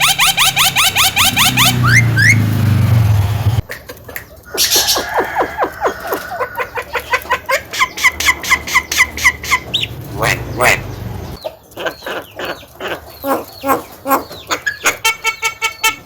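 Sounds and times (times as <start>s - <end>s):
bird calling: 0.0s - 16.0s
low hum: 0.9s - 3.6s.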